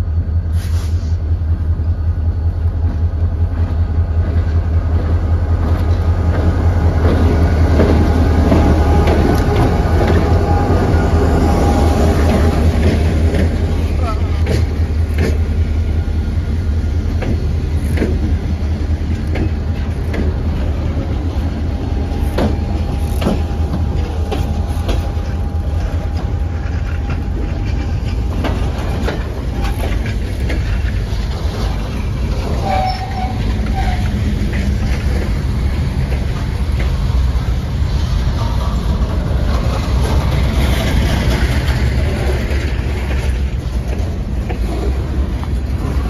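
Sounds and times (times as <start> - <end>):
steel wheels rumbling on rail: 0.0 - 46.0
clicks over rail joints: 12.1 - 15.7, 17.1 - 21.0, 22.1 - 46.0.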